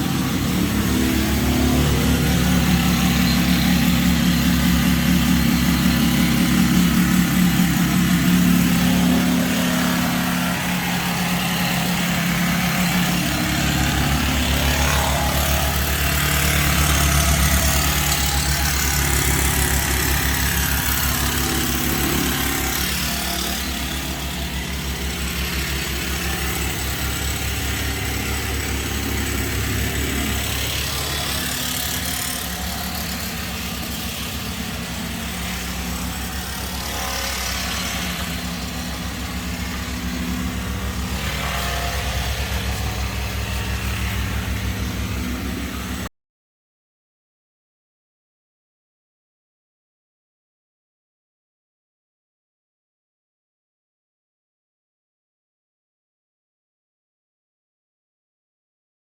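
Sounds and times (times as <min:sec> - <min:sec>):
motor humming: 0:00.0 - 0:46.1.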